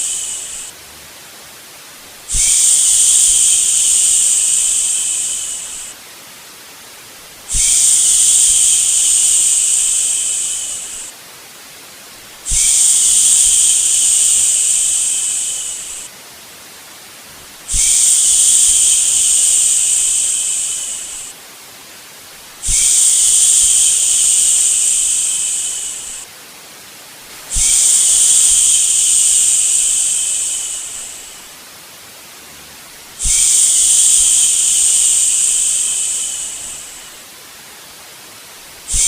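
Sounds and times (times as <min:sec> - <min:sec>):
person shushing: 0:00.0 - 0:00.7, 0:22.6 - 0:26.3, 0:27.5 - 0:31.5, 0:33.2 - 0:37.1
white noise hiss: 0:00.0 - 0:39.0.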